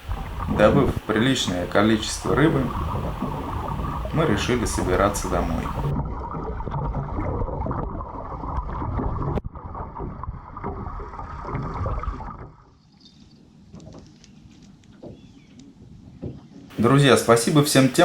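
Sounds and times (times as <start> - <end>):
boat moving over water: 0.0 - 7.4, 13.6 - 18.0
wind rumble on microphone: 0.0 - 12.6.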